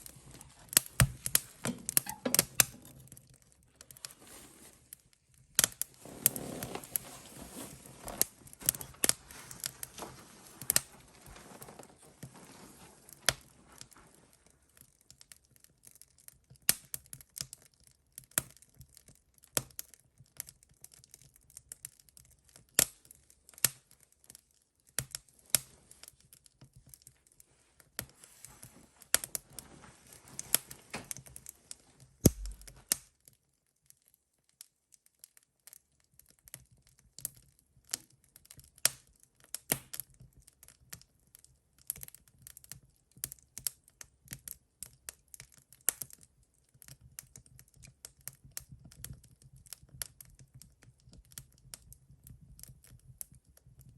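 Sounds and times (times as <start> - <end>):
wood fire crackling: 0.0 - 53.9
low thump: 32.3 - 32.7.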